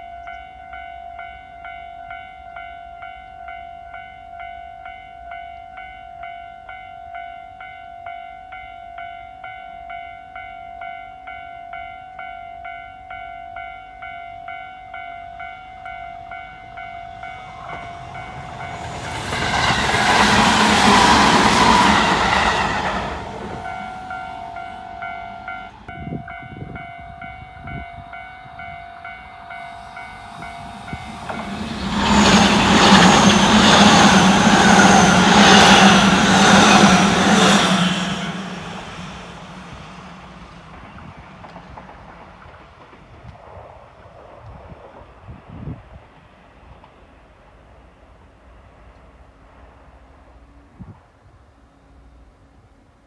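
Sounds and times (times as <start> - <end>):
level-crossing bell ringing: 0.0 - 37.6
electric trains passing: 0.0 - 53.0.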